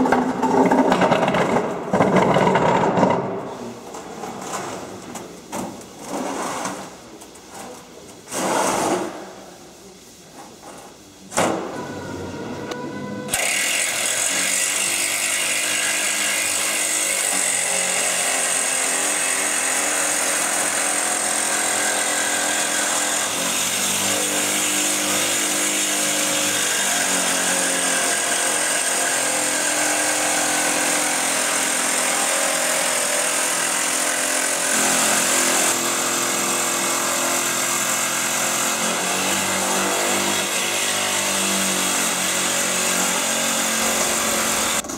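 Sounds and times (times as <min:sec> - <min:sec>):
power tool cutting metal: 0:12.7 - 0:44.9.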